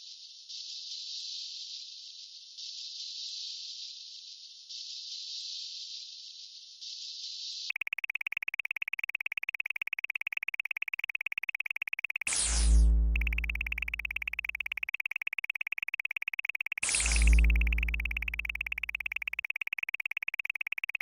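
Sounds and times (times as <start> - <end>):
high electronic chirping pulses: 7.7 - 21.0
falling synth sweep: 12.3 - 14.9, 16.8 - 19.5.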